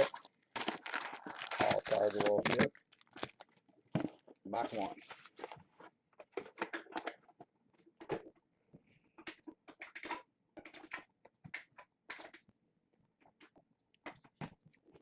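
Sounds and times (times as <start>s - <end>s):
plastic wrap crinkling: 0.0s - 5.6s.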